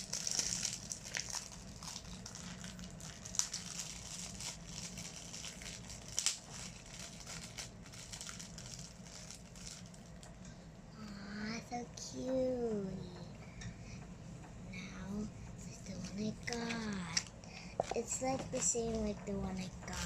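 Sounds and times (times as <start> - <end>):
packaging wrapper crinkling: 0.0 - 10.3
sharp crackles: 0.0 - 10.3.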